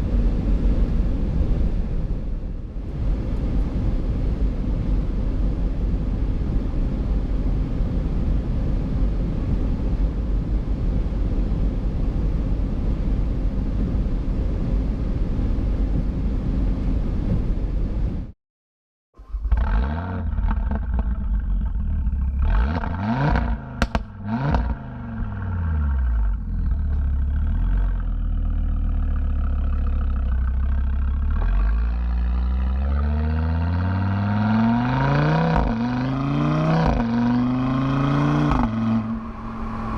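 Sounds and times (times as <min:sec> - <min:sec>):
wind and road noise: 0:00.0 - 0:18.4, 0:19.2 - 0:39.9
car engine revving: 0:19.2 - 0:39.9.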